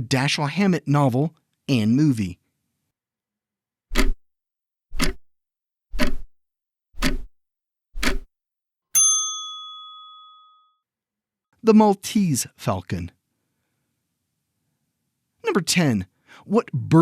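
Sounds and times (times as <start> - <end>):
clock-like ticks: 3.9 - 4.2, 5.0 - 5.2, 6.0 - 6.3, 7.0 - 7.3, 8.0 - 8.3
bell ding: 9.0 - 10.7.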